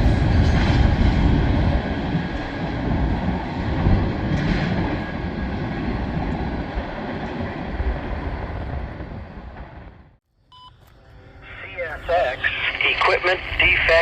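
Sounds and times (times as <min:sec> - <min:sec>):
freight train wheels rumbling: 0:00.0 - 0:10.2.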